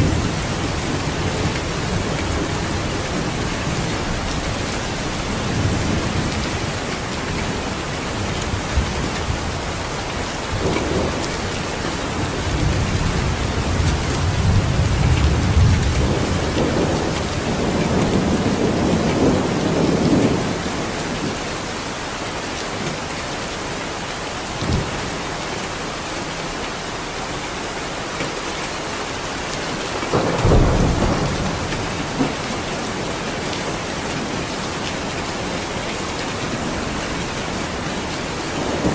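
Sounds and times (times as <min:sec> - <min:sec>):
thunder rumbling: 0:00.0 - 0:21.4, 0:29.7 - 0:34.5, 0:36.5 - 0:38.9
heavy rain: 0:00.0 - 0:38.9.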